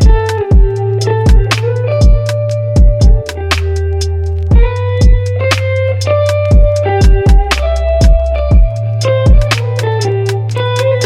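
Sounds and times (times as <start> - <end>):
kick drum beat: 0.0 - 3.5, 4.5 - 5.4, 6.4 - 9.8
guitar melody: 0.0 - 11.0
held bass notes: 0.0 - 11.0.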